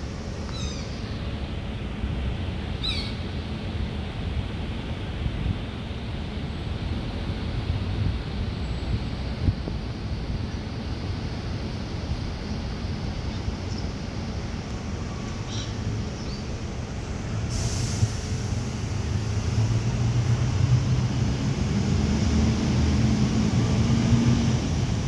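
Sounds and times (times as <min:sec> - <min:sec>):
low engine-like hum: 0:00.0 - 0:25.0
short hiss: 0:17.5 - 0:18.8.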